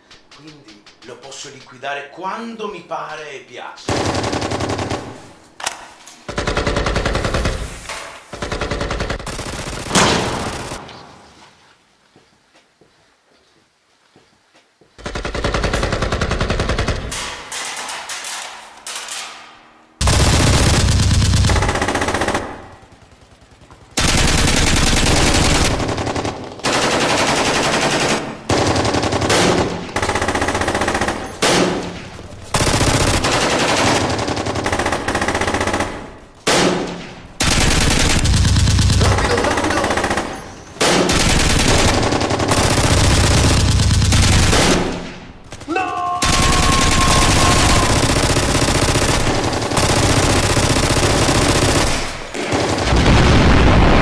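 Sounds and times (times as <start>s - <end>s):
automatic gunfire: 20.0s - 53.1s.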